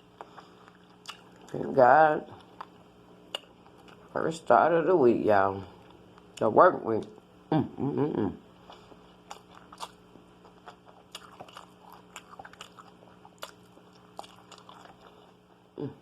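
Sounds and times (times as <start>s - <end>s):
person chewing food: 0.0s - 4.1s, 8.6s - 15.6s
faint steady hum: 0.0s - 16.0s.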